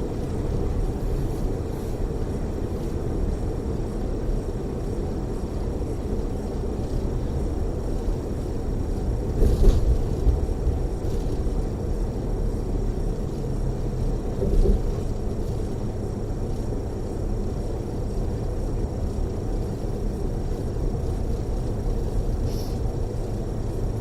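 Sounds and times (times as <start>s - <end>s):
road and engine rumble inside coach: 0.0s - 24.0s.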